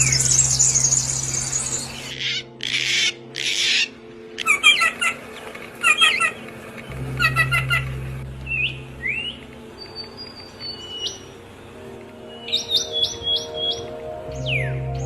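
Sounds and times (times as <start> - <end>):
songbird singing: 0.0 - 15.0
raspy bird squawks: 2.1 - 5.2.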